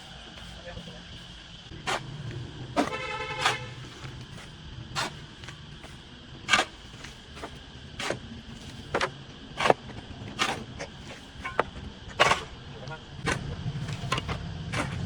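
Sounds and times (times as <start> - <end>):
hand tools swishing through weeds: 2.8 - 5.2.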